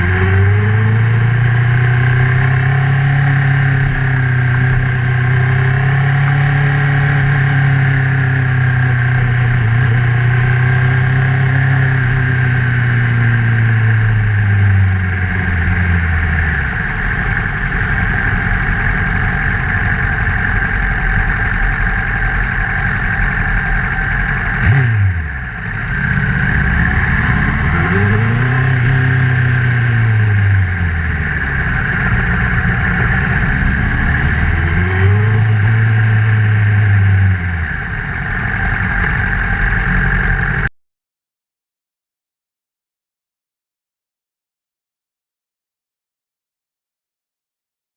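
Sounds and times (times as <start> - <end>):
motorcycle engine revving: 0.0 - 40.7
wind and road noise: 0.0 - 40.7.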